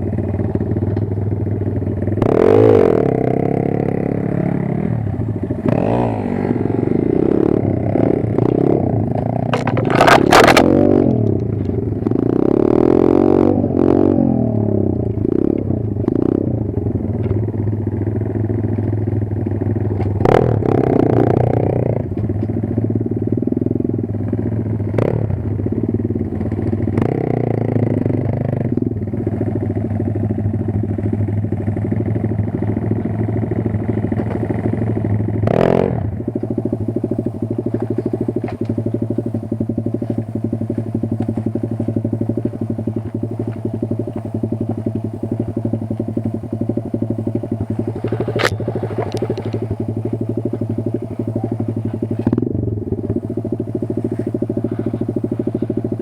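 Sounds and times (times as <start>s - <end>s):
pit bike engine revving: 0.0s - 56.0s
sharp clattering noises: 9.2s - 11.8s.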